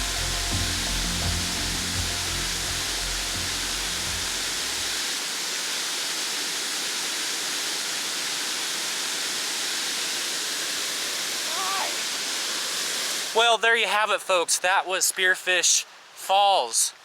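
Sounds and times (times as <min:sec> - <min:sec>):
low music notes: 0:00.0 - 0:05.0
waterfall rushing: 0:00.0 - 0:14.6.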